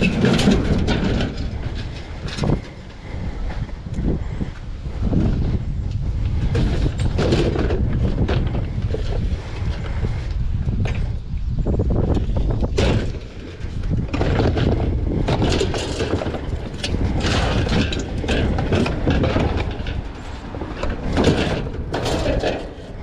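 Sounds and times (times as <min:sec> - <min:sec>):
items knocking and clattering: 0:00.0 - 0:02.8, 0:06.4 - 0:09.2, 0:12.6 - 0:23.0
steady low rumble: 0:00.0 - 0:23.0.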